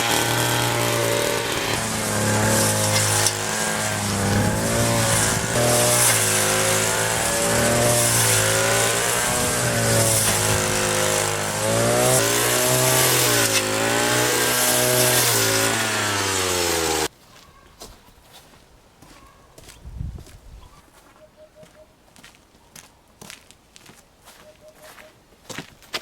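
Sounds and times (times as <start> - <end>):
brush cutter engine mowing grass: 0.0 - 17.1.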